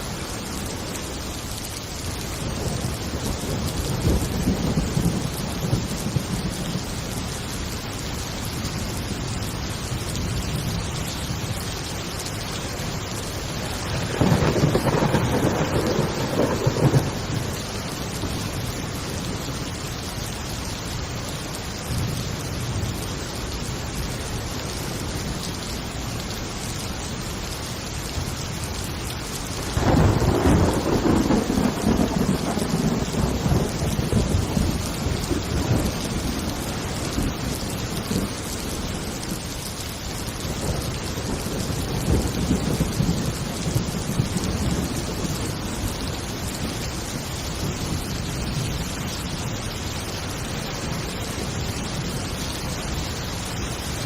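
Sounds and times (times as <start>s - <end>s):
heavy rain: 0.0s - 54.0s
thunder rolling: 13.6s - 18.6s, 29.7s - 38.3s.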